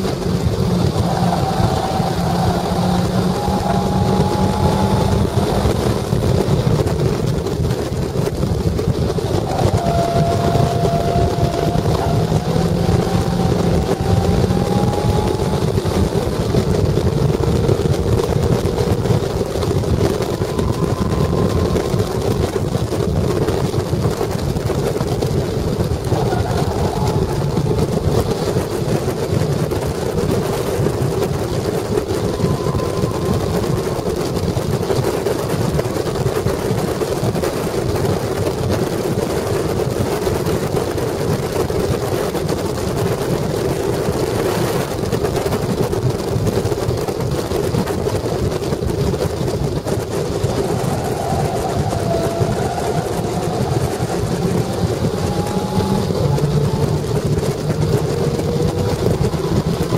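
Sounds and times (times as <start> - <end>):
racing car engine revving: 0.0 - 6.8, 9.0 - 24.1, 25.0 - 35.0, 50.3 - 59.9
wind and road rush: 0.0 - 59.9.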